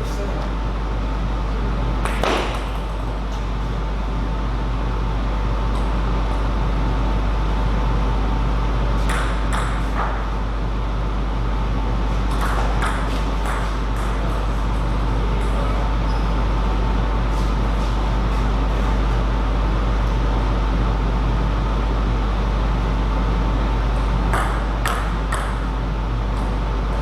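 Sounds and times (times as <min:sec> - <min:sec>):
steady hum: 0:00.0 - 0:27.0
table tennis ball hits: 0:02.0 - 0:03.1, 0:09.0 - 0:10.3, 0:12.3 - 0:14.8, 0:24.3 - 0:25.7.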